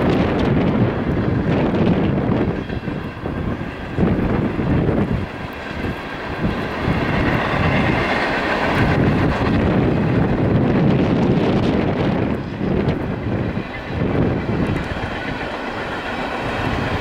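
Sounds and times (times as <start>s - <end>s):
freight train rumbling past: 0.0s - 17.0s
wind buffeting microphone: 0.0s - 17.0s.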